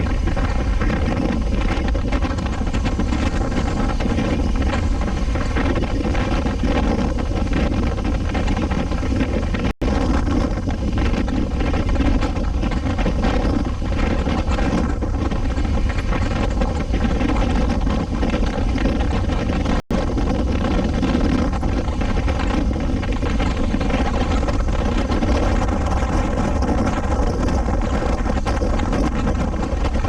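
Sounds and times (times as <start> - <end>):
motorcycle engine running: 0.0 - 30.0
wind rushing over microphone: 0.0 - 30.0.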